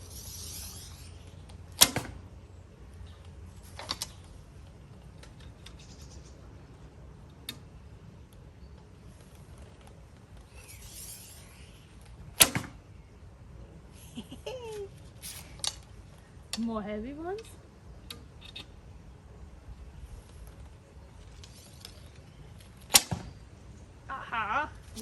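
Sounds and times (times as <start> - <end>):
bowstring snapping: 0.1 - 2.2
arrow striking target: 1.8 - 2.3, 12.4 - 12.8, 22.9 - 23.4.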